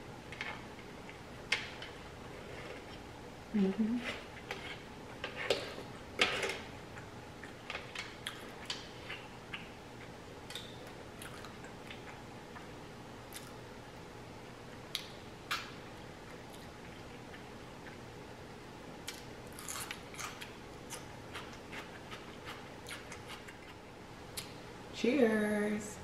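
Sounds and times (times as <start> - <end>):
chewing and mouth sounds: 6.9 - 12.7, 13.3 - 13.7, 19.0 - 24.6.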